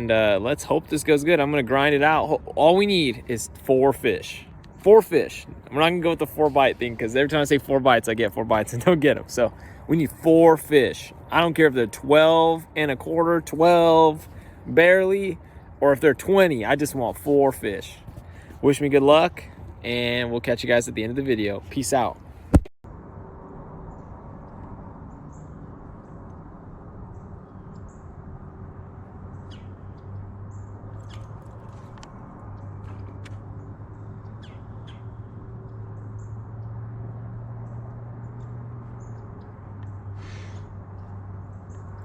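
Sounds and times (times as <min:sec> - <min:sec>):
outdoor background noise: 0:00.0 - 0:42.0
steady low hum: 0:22.4 - 0:42.0
bird chirps: 0:29.3 - 0:31.4, 0:33.6 - 0:35.4.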